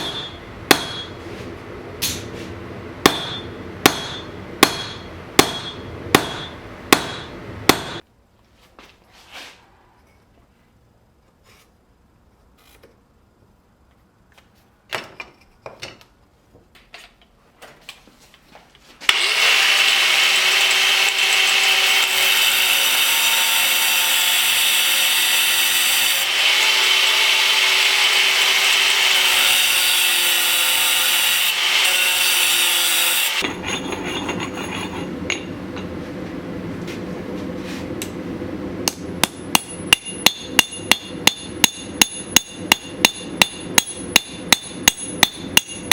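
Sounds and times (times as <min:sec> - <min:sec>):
sharp hammer blows: 0:00.0 - 0:01.2, 0:03.0 - 0:08.0
power tool whining on steel: 0:19.1 - 0:33.4.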